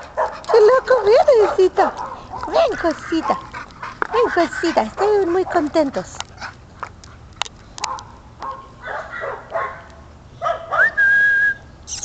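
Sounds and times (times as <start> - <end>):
person whistling for dog: 10.8 - 11.6.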